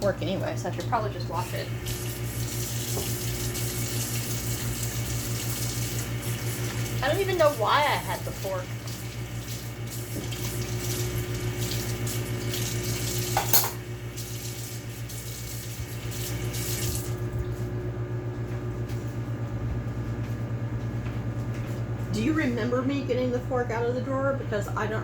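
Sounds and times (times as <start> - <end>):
microwave oven humming: 0.0 - 25.0
fork being washed: 1.4 - 17.2
tap running into sink: 1.9 - 7.6, 8.8 - 14.7.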